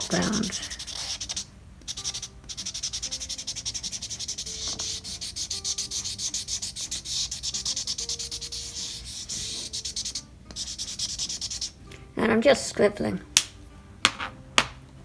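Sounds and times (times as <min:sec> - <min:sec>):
marker scribbling on paper: 0:00.0 - 0:11.8.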